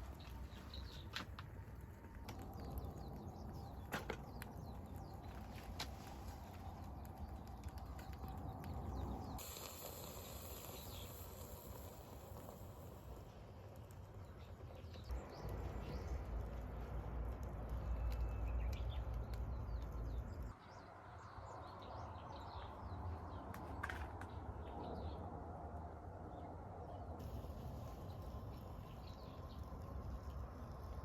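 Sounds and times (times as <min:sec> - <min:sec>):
small birds chirping: 0:00.0 - 0:25.3, 0:26.3 - 0:31.0
low rumble: 0:12.2 - 0:20.6.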